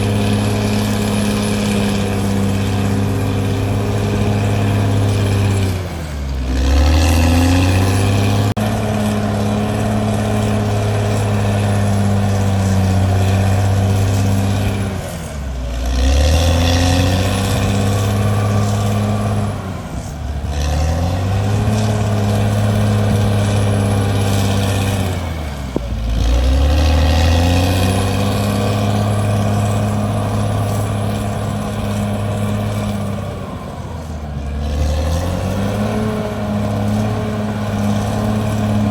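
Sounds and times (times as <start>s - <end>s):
bulldozer diesel engine labouring: 0.0s - 38.9s.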